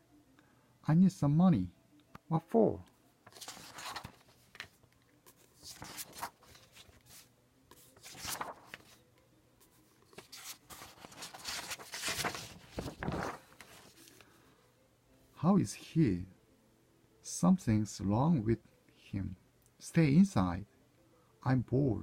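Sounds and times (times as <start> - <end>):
book pages rustling: 3.2 - 9.0, 9.6 - 14.3.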